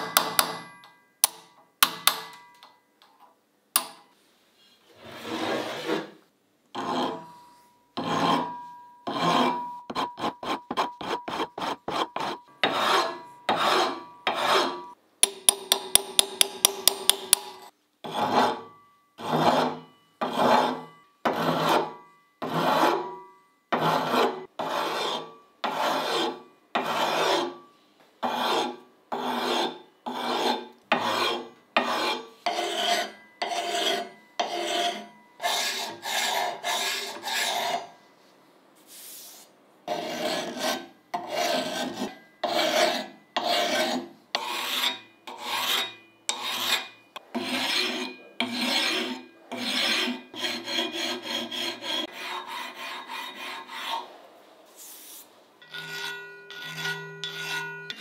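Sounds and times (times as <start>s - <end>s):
rasping strokes: 9.1s - 23.0s, 28.3s - 37.9s, 39.2s - 54.2s, 54.8s - 58.0s.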